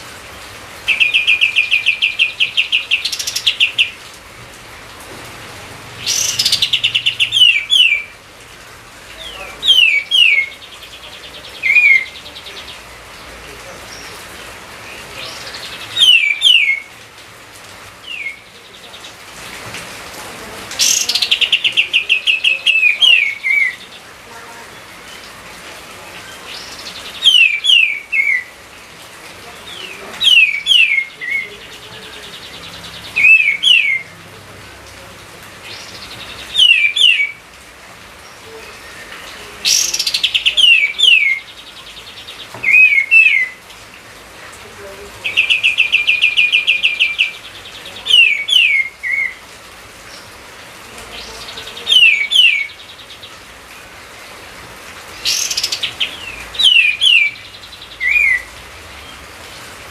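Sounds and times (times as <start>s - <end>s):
songbird singing whistled notes: 0.9s - 4.0s, 6.0s - 8.2s, 9.2s - 12.9s, 14.9s - 16.9s, 18.0s - 19.2s, 20.8s - 24.0s, 26.5s - 28.5s, 29.7s - 34.1s, 35.7s - 37.4s, 38.2s - 43.6s, 45.3s - 49.4s, 51.2s - 53.3s, 55.2s - 59.2s.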